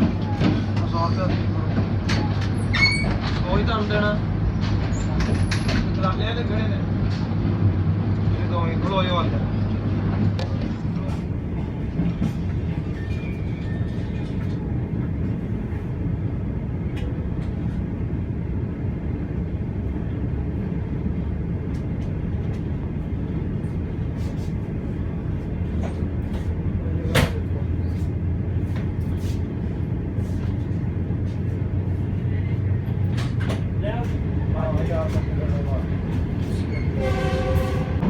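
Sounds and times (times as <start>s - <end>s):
train rumble and hum: 0.0s - 38.0s.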